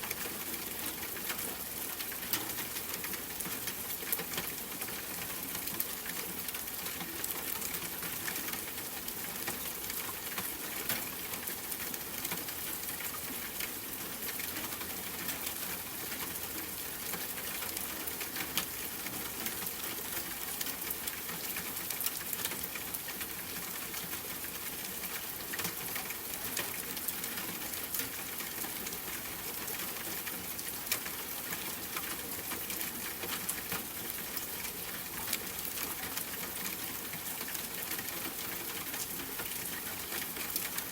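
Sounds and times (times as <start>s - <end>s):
rain patter: 0.0s - 40.9s.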